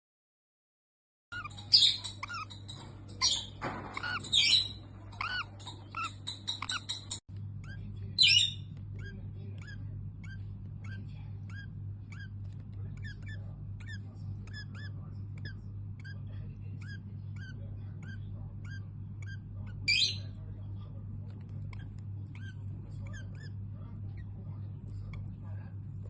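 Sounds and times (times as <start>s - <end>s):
bird squawk: 1.3s - 20.4s
small bird chirping: 1.3s - 25.7s
steady low hum: 1.4s - 26.0s.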